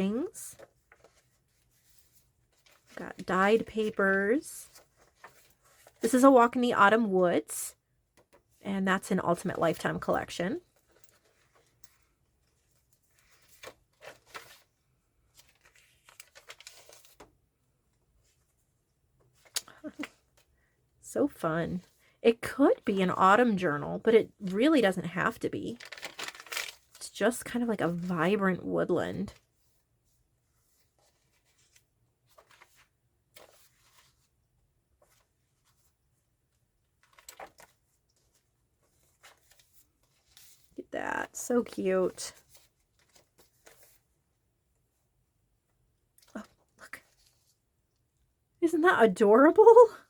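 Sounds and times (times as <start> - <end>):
paper rustling and crinkling: 0.0 - 6.5, 9.7 - 17.4, 24.4 - 28.4, 29.2 - 44.2.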